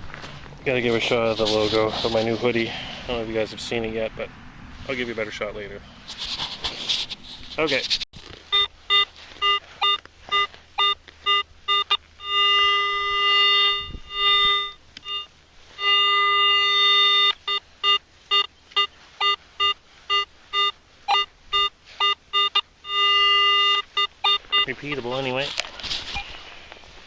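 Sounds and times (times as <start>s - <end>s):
metal detector beeps and tones: 8.4s - 26.4s.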